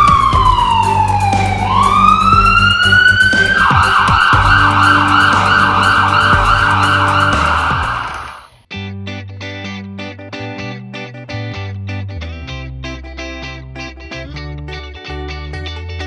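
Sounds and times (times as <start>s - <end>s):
background music with drone: 0.0s - 8.5s
emergency vehicle siren: 0.0s - 8.6s.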